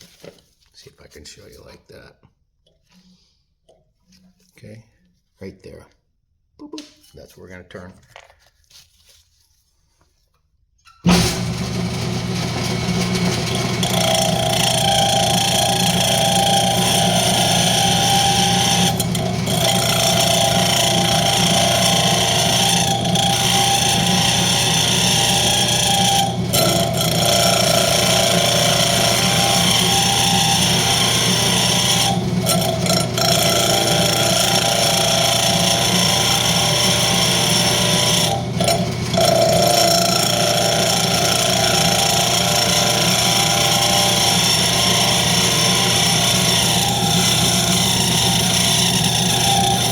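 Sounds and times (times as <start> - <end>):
tool cutting wood on lathe: 11.0 - 49.9
wood lathe running: 11.0 - 49.9.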